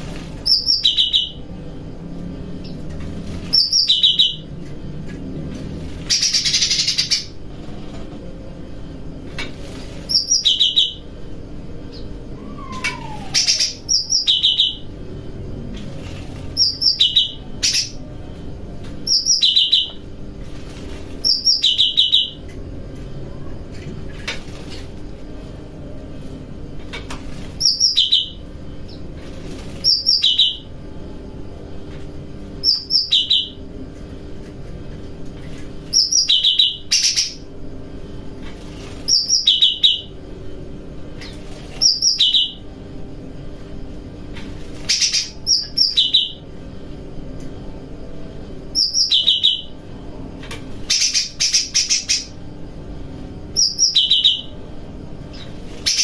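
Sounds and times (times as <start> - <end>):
faint steady hum: 0.0 - 56.0
songbird calling: 0.4 - 1.4, 3.5 - 4.5, 6.1 - 7.4, 10.1 - 11.0, 11.9 - 14.9, 16.6 - 18.0, 21.2 - 22.4, 27.6 - 29.0, 29.8 - 30.7, 32.6 - 33.6, 35.9 - 37.4, 41.8 - 42.6, 44.9 - 46.4, 48.8 - 49.8, 50.9 - 52.4, 53.6 - 54.6.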